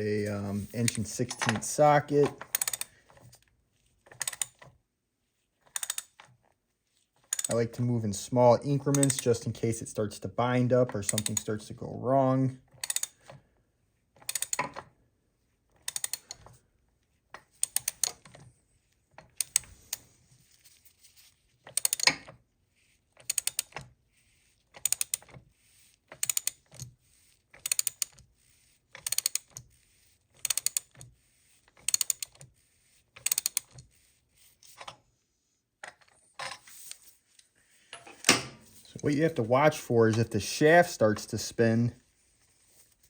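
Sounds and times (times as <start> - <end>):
socket ratchet clicking: 2.4 - 2.9, 5.7 - 6.2, 7.3 - 7.6, 12.8 - 13.2, 14.2 - 14.7, 15.8 - 16.4, 21.7 - 22.2, 23.2 - 23.8, 26.2 - 26.8, 27.6 - 28.2, 29.0 - 29.6, 30.4 - 30.9, 31.8 - 32.4, 33.2 - 33.7.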